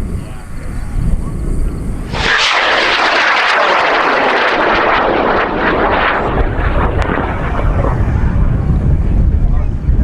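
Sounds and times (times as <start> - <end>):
rocket motor roaring: 2.0 - 8.8.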